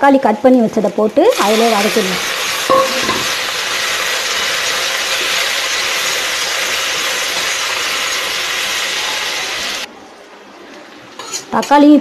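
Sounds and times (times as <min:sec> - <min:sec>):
vegetables sizzling in hot oil: 0:00.8 - 0:09.9.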